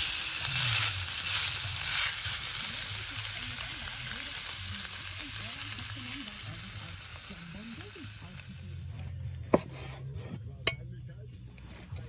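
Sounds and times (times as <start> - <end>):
food sizzling over fire: 0.0 - 9.1.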